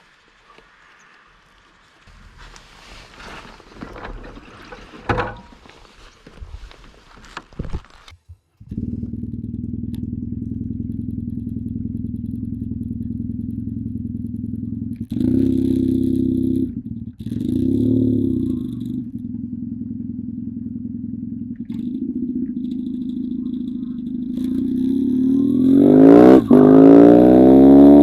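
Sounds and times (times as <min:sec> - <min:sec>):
rustling: 0:00.0 - 0:09.2
motorcycle engine idling: 0:08.2 - 0:28.0.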